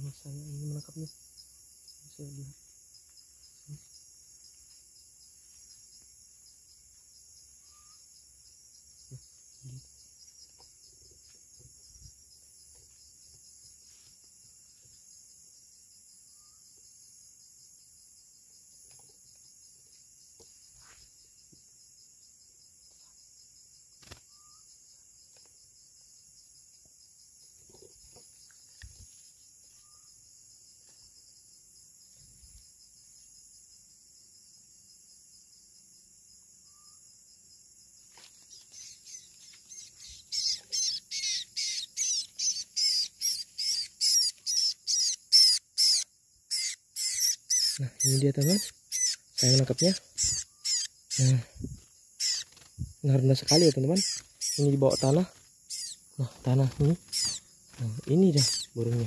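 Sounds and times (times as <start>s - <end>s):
crickets chirring: 0.0s - 59.0s
small bird rapid calls: 38.1s - 59.0s.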